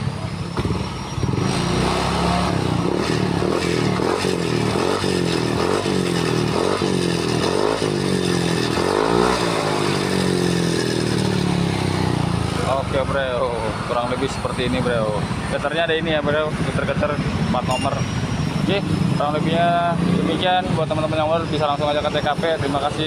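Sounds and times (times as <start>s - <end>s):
scooter engine revving: 0.0s - 15.6s.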